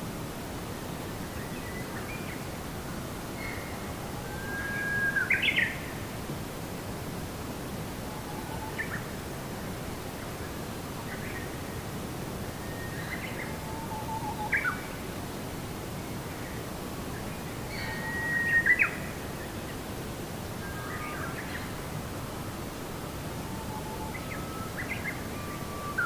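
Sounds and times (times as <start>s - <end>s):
low background noise: 0.0s - 26.0s.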